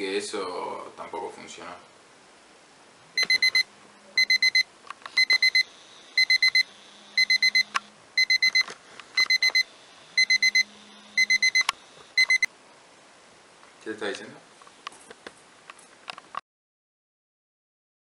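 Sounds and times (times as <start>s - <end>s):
phone alarm beeping: 3.2s - 12.5s
low buzz: 9.7s - 12.0s.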